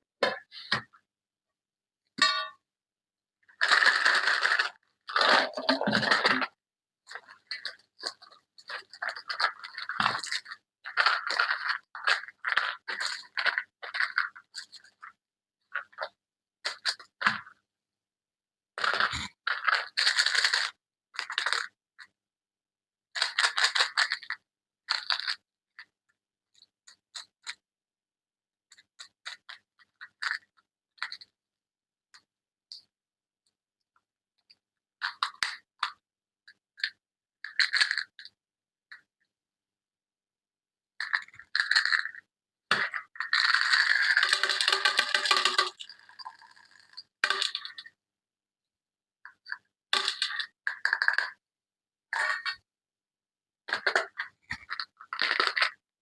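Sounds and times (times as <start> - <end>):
toy packaging crinkling and crackling: 42.9 - 47.8.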